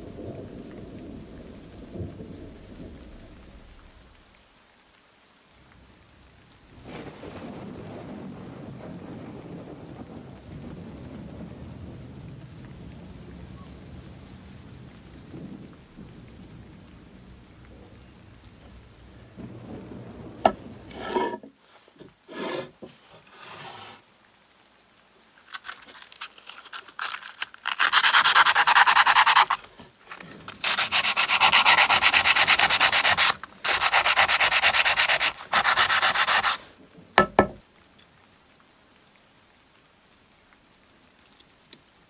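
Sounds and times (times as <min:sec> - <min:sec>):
sanding back and forth: 0:20.5 - 0:24.0, 0:25.5 - 0:37.6.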